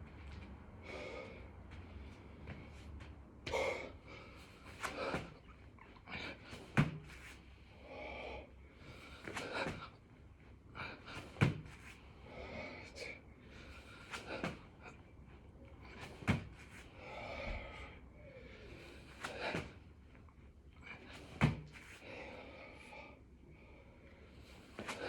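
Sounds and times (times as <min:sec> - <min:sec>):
man breathing hard: 0:00.8 - 0:20.1, 0:20.7 - 0:25.0
body thumping on floor: 0:06.8 - 0:07.1, 0:11.4 - 0:11.8, 0:16.1 - 0:16.6, 0:21.4 - 0:21.8.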